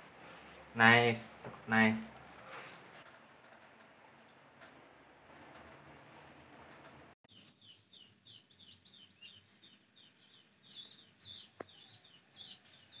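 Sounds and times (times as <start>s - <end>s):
small birds chirping: 6.1s - 13.0s.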